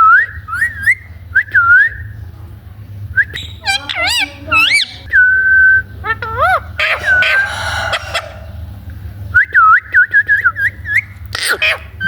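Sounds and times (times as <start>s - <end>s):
parrot whistling: 3.2s - 8.8s
parrot rasping call: 6.1s - 8.8s.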